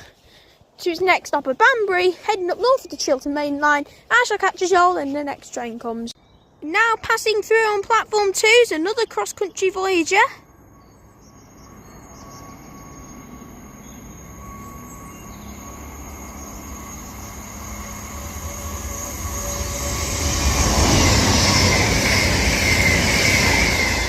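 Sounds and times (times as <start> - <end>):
train passing at speed: 10.4 - 24.0.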